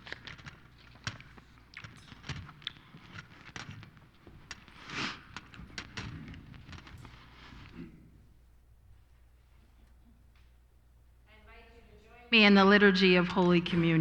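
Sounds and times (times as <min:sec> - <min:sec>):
loud rustle or breath: 0:04.6 - 0:08.2
people shifting knocks and clicks: 0:12.4 - 0:14.0.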